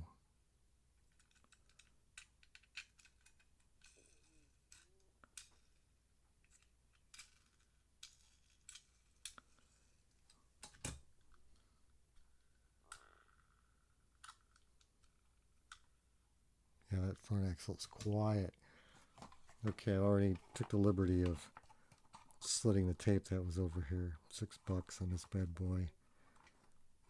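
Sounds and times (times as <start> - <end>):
toy cars clicking and tapping: 1.1 - 5.8, 6.4 - 9.7.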